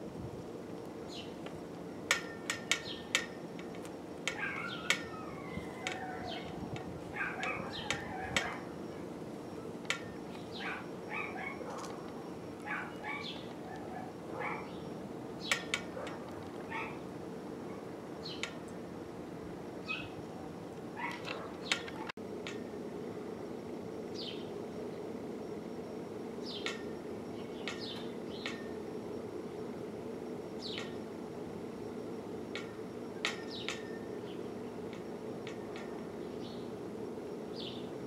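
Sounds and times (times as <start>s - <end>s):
low background hum: 0.0s - 38.0s
small birds chirping: 1.1s - 1.4s, 2.8s - 3.2s, 4.3s - 9.1s, 9.7s - 15.8s, 18.2s - 18.6s, 19.8s - 20.2s, 24.1s - 25.1s, 26.4s - 28.6s, 30.6s - 31.0s, 33.3s - 34.8s, 35.6s - 36.8s, 37.5s - 38.0s.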